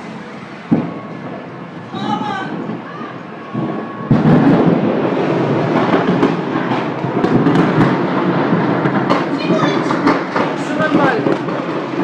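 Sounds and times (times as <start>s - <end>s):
fire rumbling and crackling: 0.0s - 12.0s
explosion blast: 0.6s - 12.0s.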